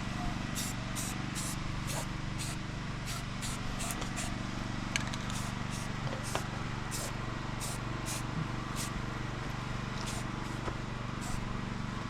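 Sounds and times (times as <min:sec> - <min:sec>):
low engine hum: 0:00.0 - 0:12.0
spray paint can hissing: 0:00.6 - 0:04.3, 0:05.3 - 0:08.9, 0:10.0 - 0:10.6, 0:11.2 - 0:11.4.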